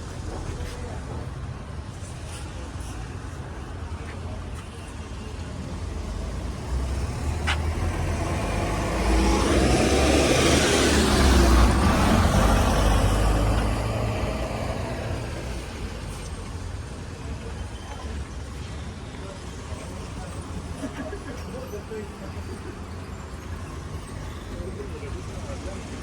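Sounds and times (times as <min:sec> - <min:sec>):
vehicle driving past: 0:06.6 - 0:15.6.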